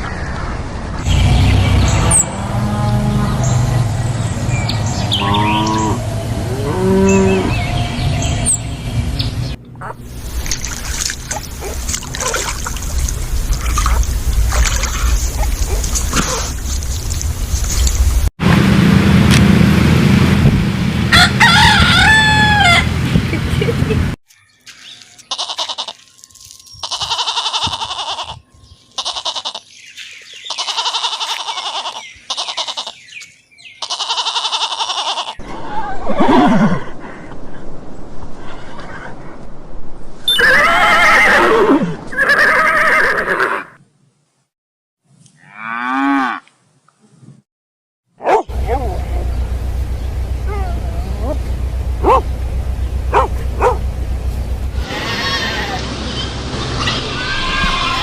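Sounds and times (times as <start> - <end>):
water trickling and splashing: 10.1 - 18.3, 24.6 - 27.2
goat bleating: 25.3 - 26.1, 26.8 - 28.4, 29.0 - 29.7, 30.4 - 33.0, 33.8 - 35.4, 54.8 - 55.8
horse whinnying: 40.3 - 43.8.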